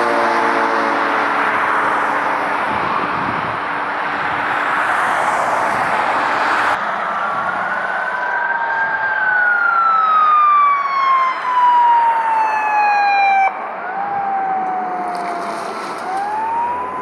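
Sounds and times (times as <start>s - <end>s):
emergency siren wailing: 0.0s - 17.0s.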